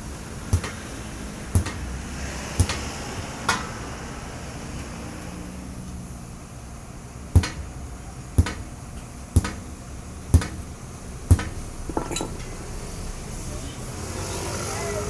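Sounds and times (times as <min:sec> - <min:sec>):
sharp knocks: 0:00.5 - 0:00.9, 0:01.6 - 0:03.8, 0:07.4 - 0:07.8, 0:08.4 - 0:08.8, 0:09.4 - 0:09.7, 0:10.3 - 0:10.7, 0:11.3 - 0:12.4.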